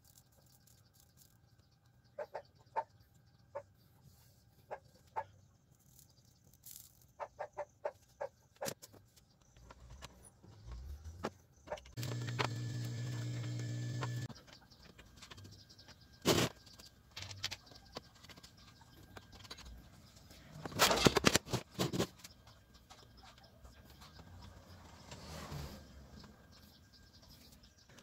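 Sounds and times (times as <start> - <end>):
steady pitched buzz: 12.0 - 14.3.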